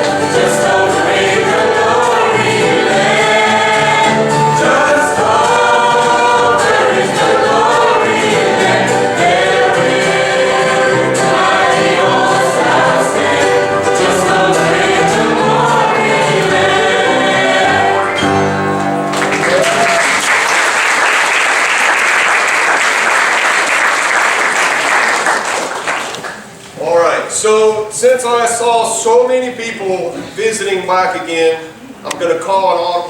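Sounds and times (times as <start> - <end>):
choir singing gospel: 0.0 - 20.8
congregation applauding: 18.8 - 26.6.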